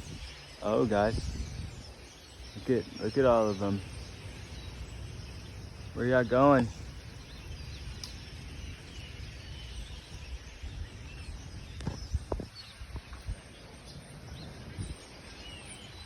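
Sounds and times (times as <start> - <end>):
low outdoor rumble: 0.0 - 12.3
faint bird chirps: 0.0 - 16.0.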